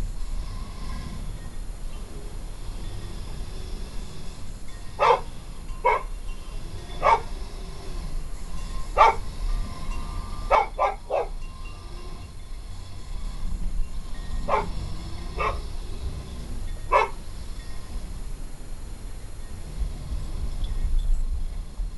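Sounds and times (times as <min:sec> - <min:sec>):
dog barking: 0:05.0 - 0:06.1, 0:07.0 - 0:07.3, 0:09.0 - 0:09.3, 0:10.5 - 0:11.3, 0:14.5 - 0:14.8, 0:15.4 - 0:15.7, 0:16.9 - 0:17.2.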